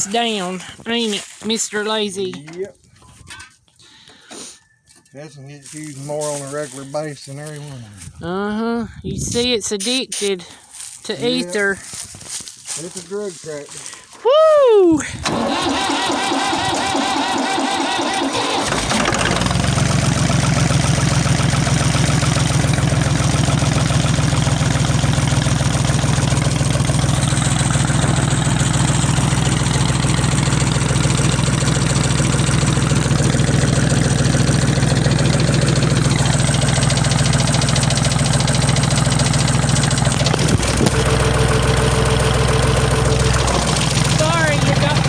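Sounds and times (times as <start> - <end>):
tractor engine idling: 15.1 - 45.0.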